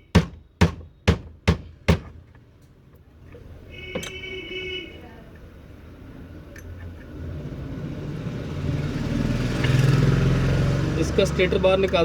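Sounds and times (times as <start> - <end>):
hammer knocking on metal: 0.1 - 2.3.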